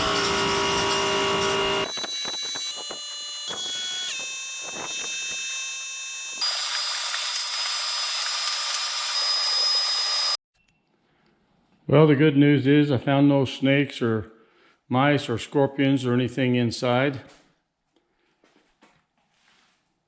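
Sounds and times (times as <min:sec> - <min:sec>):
cleaning machine motor whining: 0:00.0 - 0:10.4.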